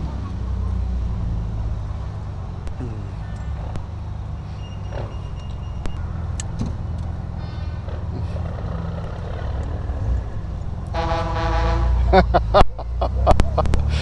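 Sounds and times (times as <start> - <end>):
engine low rumble: 0.0 - 14.0
loud horn blast: 10.9 - 12.3.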